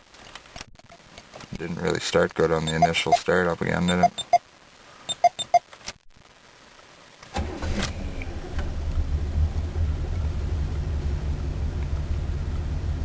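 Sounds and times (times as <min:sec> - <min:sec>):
man talking: 0:01.5 - 0:04.2
car engine starting and idling: 0:07.3 - 0:13.0.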